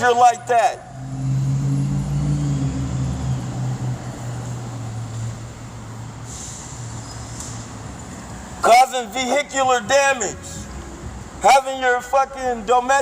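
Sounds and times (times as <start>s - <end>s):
vehicle engine humming: 0.0s - 8.6s.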